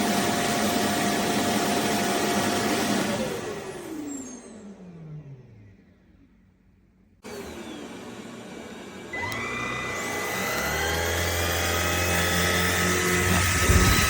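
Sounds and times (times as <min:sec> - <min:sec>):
stick vacuum motor whining: 0:07.2 - 0:14.0.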